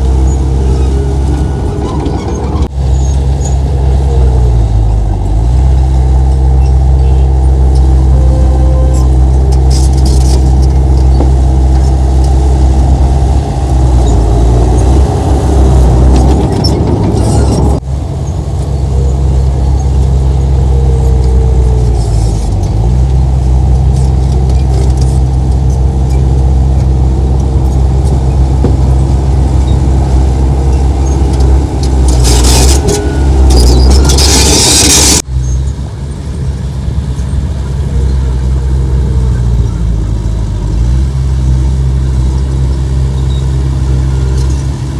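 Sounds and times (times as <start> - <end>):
heavy diesel engine droning: 0.0 - 44.9.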